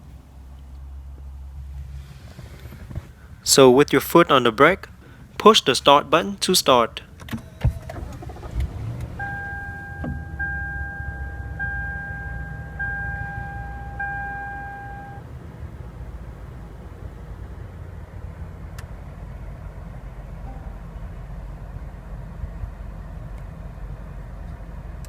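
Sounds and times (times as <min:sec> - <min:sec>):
car engine starting and idling: 0:00.0 - 0:19.0
two-tone dashboard warning chime: 0:09.2 - 0:15.3.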